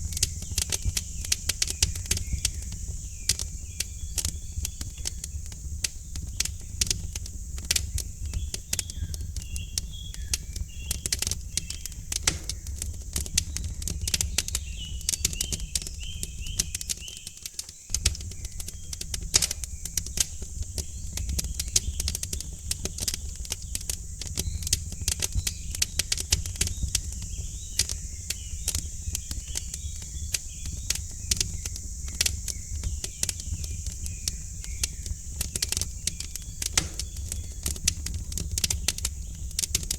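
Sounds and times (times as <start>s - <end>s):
wood fire crackling: 0.0s - 39.9s
faint bird chirps: 7.7s - 20.2s, 20.8s - 39.7s.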